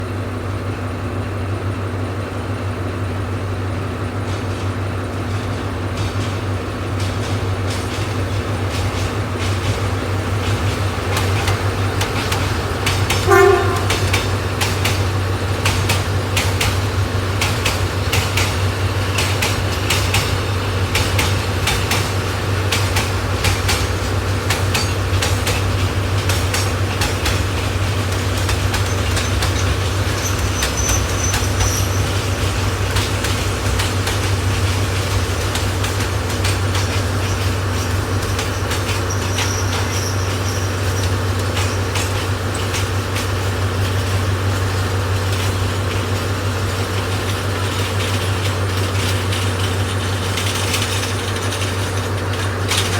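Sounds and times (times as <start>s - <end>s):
diesel locomotive droning: 0.0s - 52.9s
wheels clicking over rail joints: 2.7s - 52.9s
high wheel or brake squeals: 11.3s - 14.5s, 28.3s - 32.8s, 37.1s - 42.4s.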